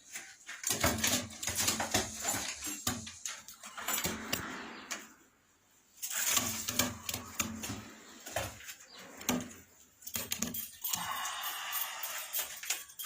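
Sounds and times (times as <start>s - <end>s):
sharp clicks and knocks: 6.1s - 11.0s.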